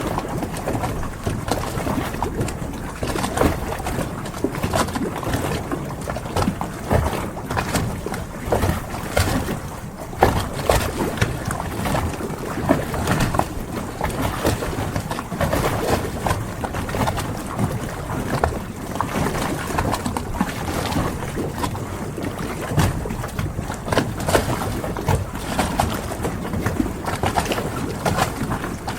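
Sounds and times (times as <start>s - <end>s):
water washing: 0.0s - 28.9s
wind: 0.0s - 28.9s.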